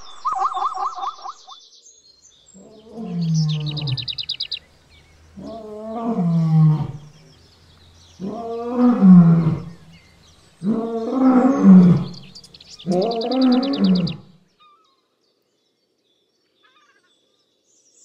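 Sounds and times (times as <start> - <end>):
bird trill: 0.0 - 1.6, 2.4 - 15.0
lion roaring: 2.6 - 4.3, 5.0 - 14.4.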